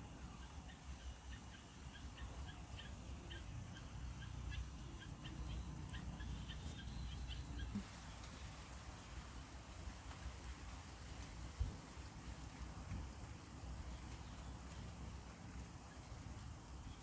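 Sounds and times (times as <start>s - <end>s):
bird chirping: 0.2s - 8.4s.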